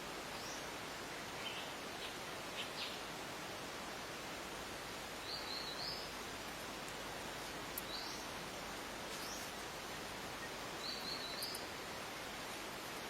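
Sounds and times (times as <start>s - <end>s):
steady background hiss: 0.0s - 13.0s
birds chirping: 7.7s - 8.5s, 9.1s - 13.0s.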